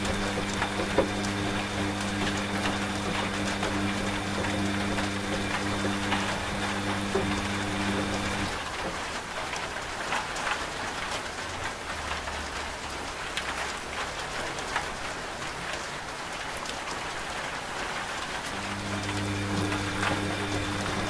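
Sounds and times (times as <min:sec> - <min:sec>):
rain hissing: 0:00.0 - 0:09.4, 0:18.2 - 0:21.0
raindrops ticking on a surface: 0:00.0 - 0:21.0.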